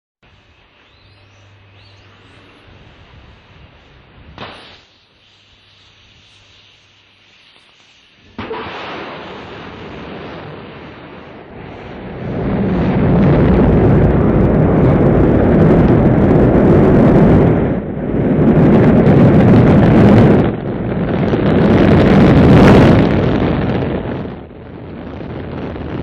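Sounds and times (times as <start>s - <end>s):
rocket engines roaring: 8.2s - 26.0s.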